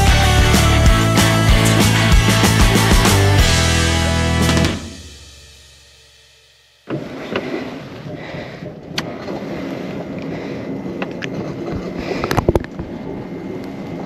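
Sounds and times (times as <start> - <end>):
fishing boat background noise: 6.8 - 14.0.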